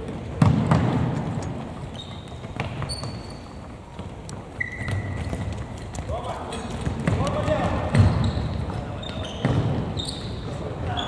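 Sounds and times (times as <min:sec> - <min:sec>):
knocks on indoor court: 0:00.4 - 0:01.4, 0:06.5 - 0:10.0
ball thumps: 0:00.4 - 0:01.6
shoe squeaks: 0:01.8 - 0:05.9, 0:07.5 - 0:11.0.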